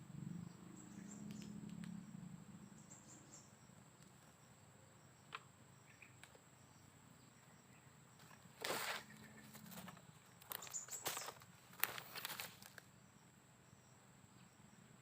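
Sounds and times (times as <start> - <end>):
high insect whine: 0.0 - 15.0
rustling: 8.2 - 12.9.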